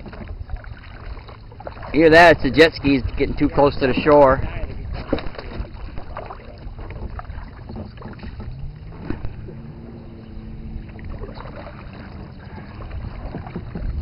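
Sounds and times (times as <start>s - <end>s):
motorboat engine humming: 0.0s - 14.0s
low rumble: 3.1s - 14.0s.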